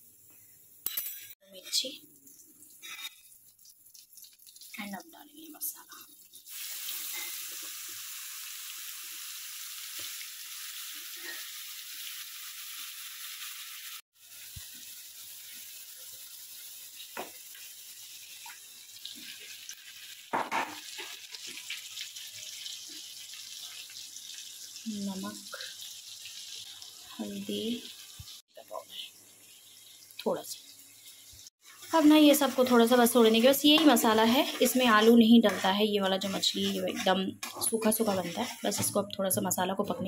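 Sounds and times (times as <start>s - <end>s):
spice paste sizzling in oil: 0.0s - 40.0s.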